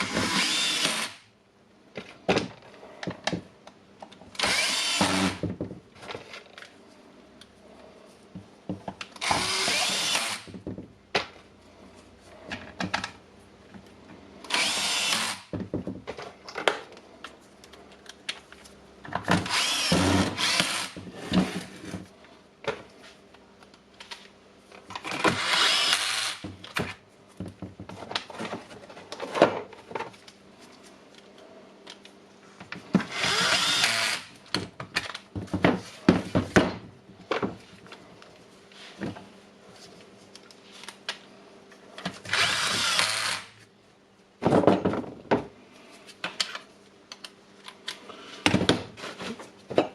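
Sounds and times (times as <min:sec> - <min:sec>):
power screwdriver whirring: 0:00.0 - 0:01.2, 0:04.4 - 0:05.4, 0:09.2 - 0:10.5, 0:14.5 - 0:15.5, 0:19.5 - 0:21.0, 0:25.3 - 0:26.4, 0:33.1 - 0:34.3, 0:42.3 - 0:43.5.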